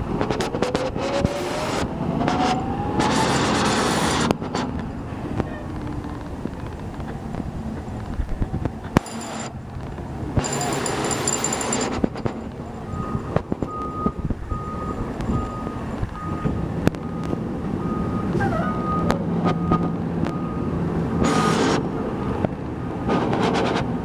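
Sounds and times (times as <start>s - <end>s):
truck engine running: 1.5s - 24.0s
reverse alarm beeping: 12.8s - 20.7s.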